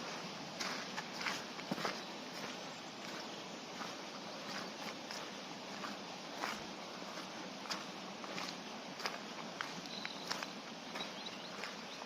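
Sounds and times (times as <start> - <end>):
footsteps on a track: 0.0 - 12.0
steady background hiss: 0.0 - 12.0.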